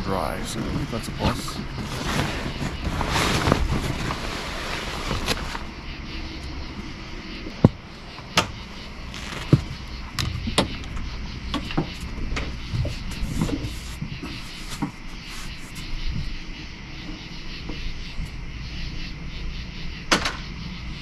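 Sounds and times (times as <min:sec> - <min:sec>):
camping gear knocking and clattering: 0:07.5 - 0:15.0.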